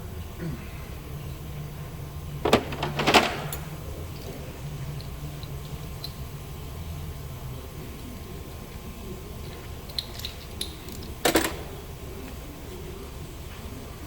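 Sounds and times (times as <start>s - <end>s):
steady low hum: 0.0s - 14.0s
sharp knocks and clatter: 2.4s - 3.7s.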